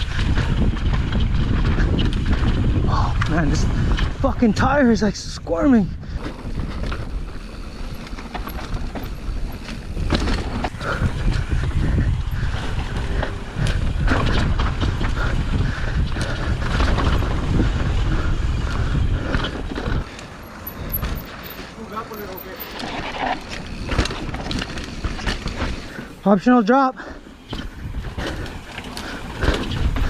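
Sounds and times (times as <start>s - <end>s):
wind rumbling on microphone: 0.0s - 26.4s, 27.0s - 30.0s
bike clattering: 6.0s - 30.0s
tyres crunching over dirt: 6.2s - 11.8s, 19.4s - 30.0s.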